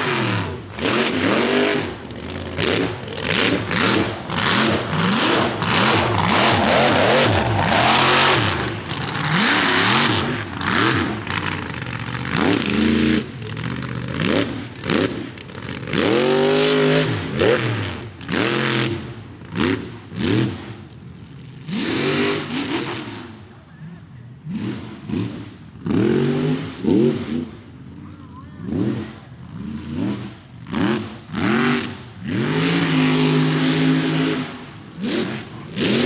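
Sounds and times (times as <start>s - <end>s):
truck engine revving: 0.0s - 20.7s, 28.7s - 36.0s
loud rushing noise: 2.6s - 9.9s.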